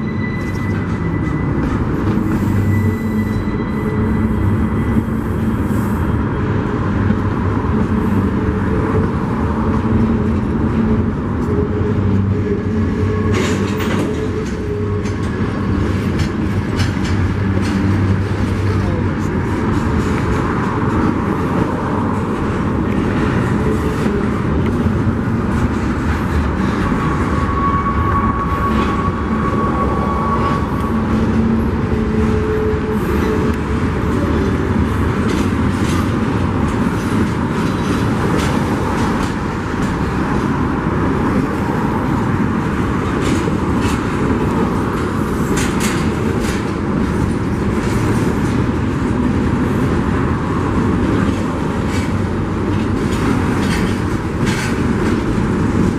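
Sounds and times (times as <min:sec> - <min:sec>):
thin squeal: 0:00.0 - 0:01.6, 0:02.4 - 0:05.0
freight train rumble: 0:00.0 - 0:55.9
wheels clattering over rails: 0:06.9 - 0:28.1, 0:29.7 - 0:55.9.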